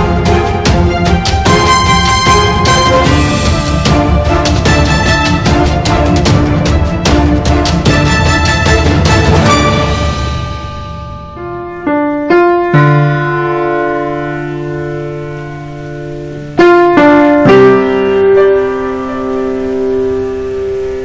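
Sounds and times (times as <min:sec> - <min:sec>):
piano notes and chords: 0:00.0 - 0:21.0.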